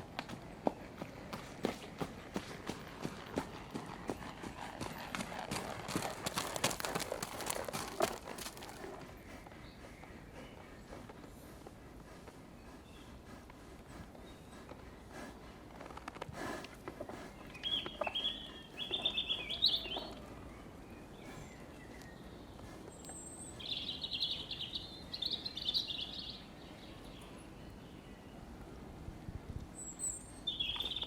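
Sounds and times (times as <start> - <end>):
faint outdoor background: 0.0 - 31.0
songbird chirping trills: 17.1 - 28.5, 29.7 - 31.0.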